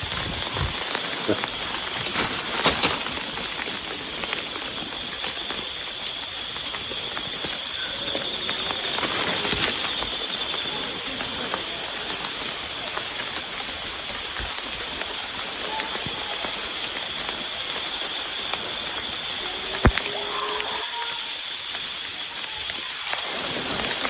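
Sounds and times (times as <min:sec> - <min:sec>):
steady outdoor hiss: 0:00.0 - 0:24.0.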